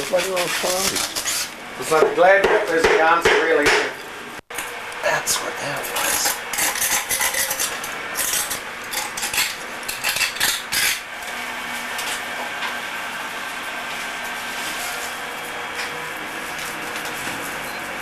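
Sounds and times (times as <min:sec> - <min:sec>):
hand tool scraping hard material: 0:00.0 - 0:01.6.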